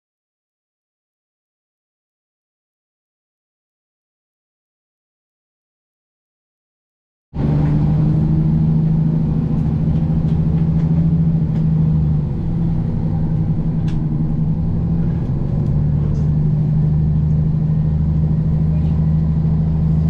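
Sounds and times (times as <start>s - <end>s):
vehicle engine droning: 7.4s - 20.0s.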